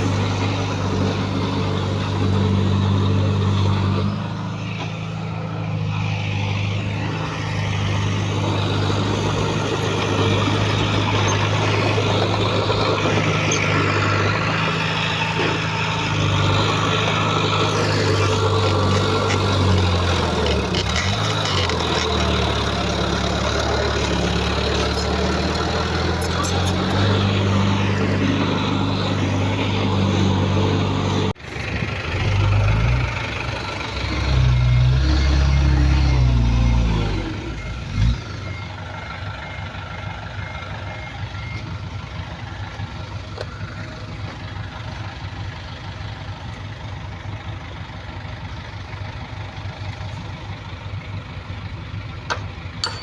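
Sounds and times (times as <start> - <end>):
engine revving: 0.0 - 38.9
diesel engine running under load: 0.0 - 53.0.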